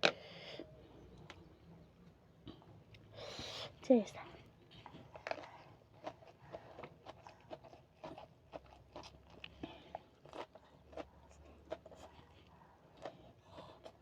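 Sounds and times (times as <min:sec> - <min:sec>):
person chewing and crunching: 0:04.8 - 0:14.0.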